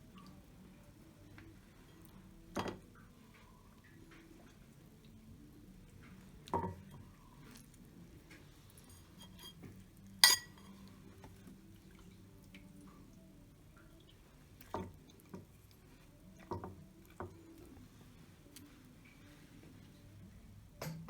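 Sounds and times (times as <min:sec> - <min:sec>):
cookware knocking and clinking: 0:09.2 - 0:10.8.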